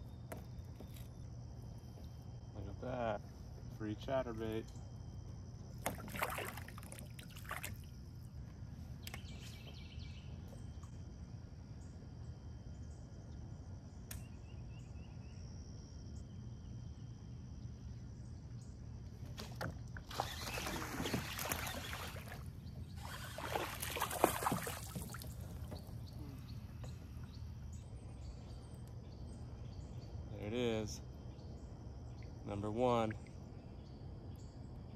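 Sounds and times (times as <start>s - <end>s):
fish splashing in water: 5.8s - 7.9s, 20.0s - 25.9s.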